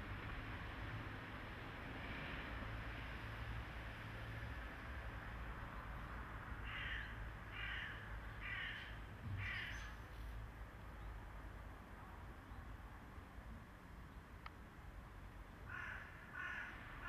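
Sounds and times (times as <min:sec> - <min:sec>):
bird cawing: 0:06.6 - 0:10.0, 0:15.7 - 0:17.0.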